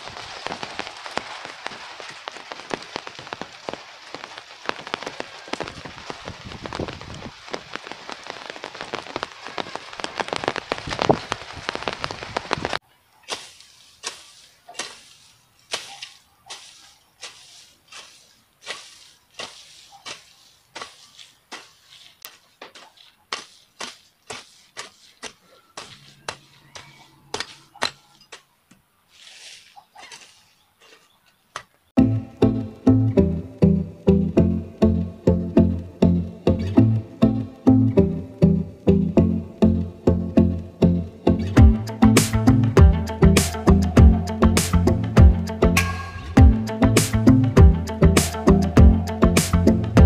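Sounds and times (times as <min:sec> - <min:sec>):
steady rain falling: 0:00.0 - 0:27.7
hoe scraping the ground: 0:13.2 - 0:28.4, 0:29.1 - 0:31.2.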